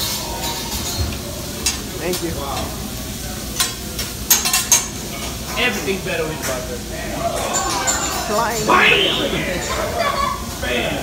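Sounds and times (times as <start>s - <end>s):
food sizzling on a griddle: 0.0s - 6.9s.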